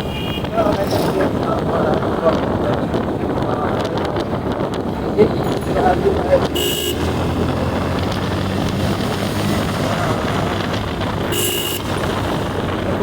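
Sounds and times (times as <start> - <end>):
vehicle horn toot: 0.0 - 1.2, 6.3 - 7.7, 11.1 - 12.6
motorcycle engine and road noise: 0.0 - 13.0.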